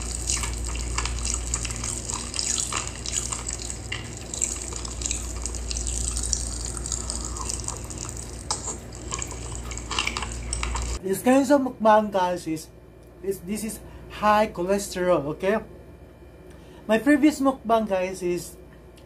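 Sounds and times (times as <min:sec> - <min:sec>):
low hum: 0:00.0 - 0:11.0
wet chewing and lip-smacking: 0:00.0 - 0:11.0.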